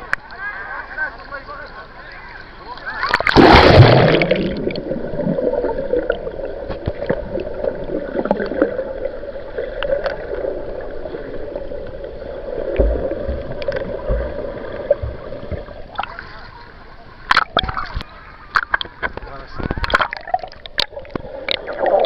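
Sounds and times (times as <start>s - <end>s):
sea water sloshing and gurgling: 2.9s - 16.7s, 17.3s - 22.0s
loud splash: 3.0s - 6.1s
low thumps: 12.8s - 15.8s.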